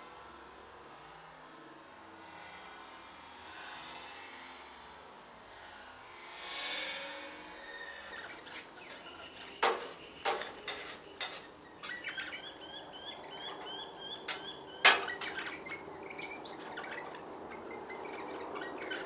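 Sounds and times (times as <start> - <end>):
clinks on a feeding dish: 13.5 - 15.5.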